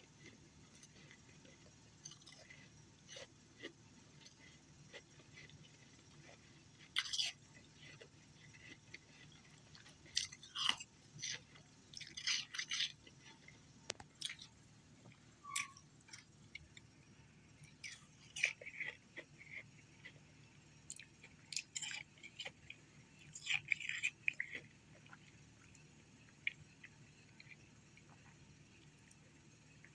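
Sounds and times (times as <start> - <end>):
ice crunching in mouth: 23.3 - 25.2.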